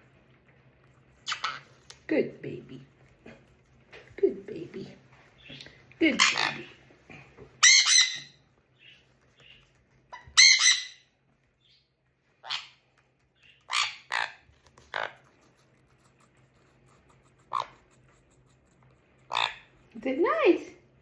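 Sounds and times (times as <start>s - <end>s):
parrot squawking: 1.2s - 1.7s, 5.5s - 6.8s, 7.6s - 9.0s, 10.1s - 11.1s, 12.4s - 15.4s, 17.4s - 17.9s, 19.2s - 19.8s.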